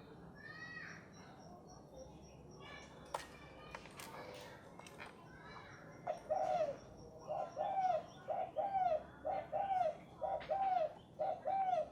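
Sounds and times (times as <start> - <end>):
dove cooing: 6.3 - 11.9.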